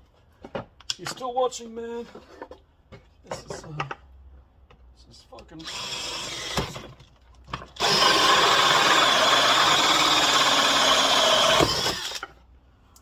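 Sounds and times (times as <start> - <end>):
power drill drilling into wood: 5.6 - 6.9, 7.8 - 12.3.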